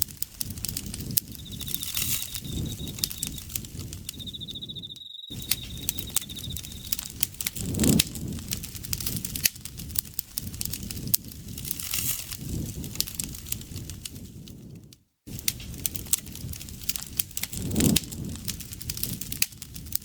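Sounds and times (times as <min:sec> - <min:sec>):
campfire crackling: 0:00.0 - 0:14.3, 0:15.3 - 0:20.0
insect trilling: 0:00.9 - 0:07.1.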